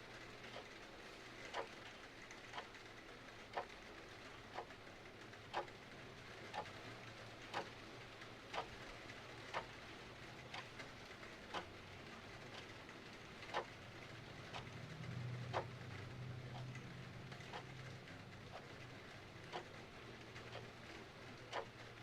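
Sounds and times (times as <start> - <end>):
faint rain patter: 0.0 - 22.0
mechanical clock ticking: 1.5 - 1.8, 2.4 - 2.8, 5.3 - 5.8, 6.4 - 6.8, 7.5 - 9.8, 10.4 - 22.0.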